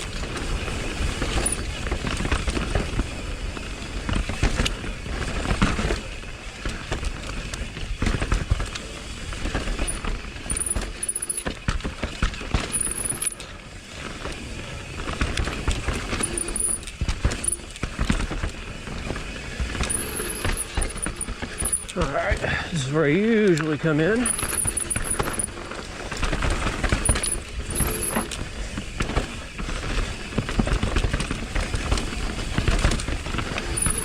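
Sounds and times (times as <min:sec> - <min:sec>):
bike rattling clicks and knocks: 0:00.0 - 0:22.5, 0:23.5 - 0:34.0
bike tyre noise: 0:00.0 - 0:34.0.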